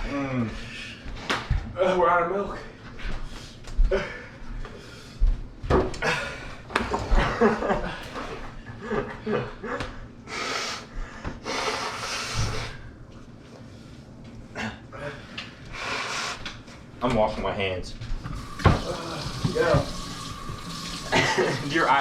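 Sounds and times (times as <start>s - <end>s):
people breathing hard: 3.0s - 6.7s, 8.7s - 16.5s.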